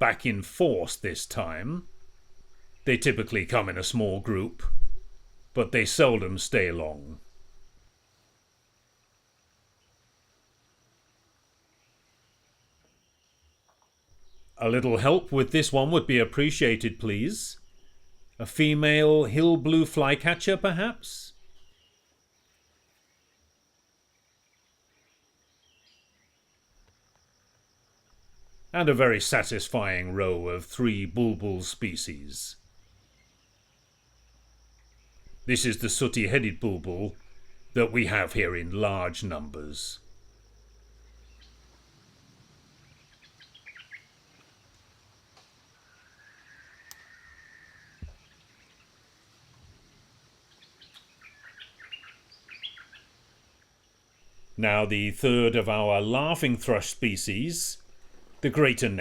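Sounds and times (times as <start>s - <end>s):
faint forest birdsong: 0.0s - 59.0s
high insect drone: 0.0s - 59.0s
faint bird call: 45.7s - 48.9s.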